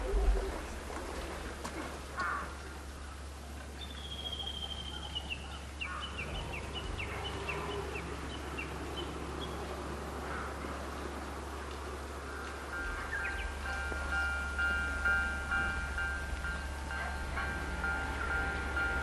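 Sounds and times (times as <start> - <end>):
low background noise: 0.0 - 19.0
bird calling: 3.8 - 11.0, 12.2 - 19.0.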